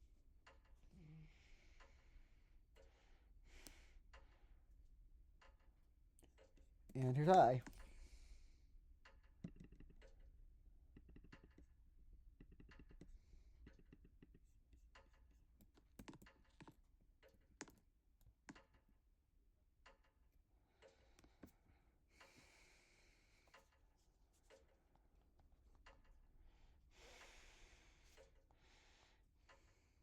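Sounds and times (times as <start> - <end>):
light irregular clicks: 0.0 - 19.0.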